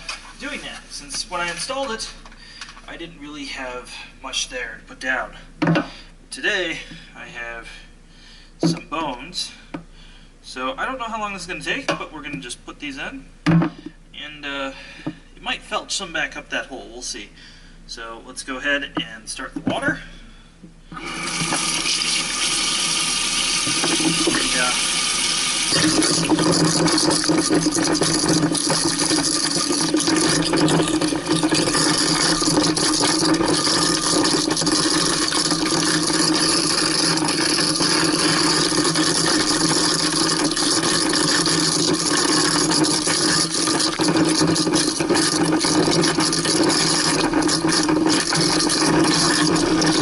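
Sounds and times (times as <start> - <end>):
garbage disposal grinding bones: 21.0 - 50.0.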